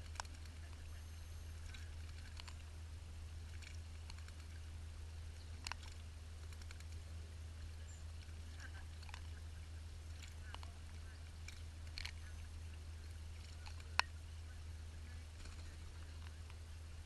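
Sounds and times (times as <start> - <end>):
small birds chipping: 0.0 - 17.0
steady low hum: 0.0 - 17.0.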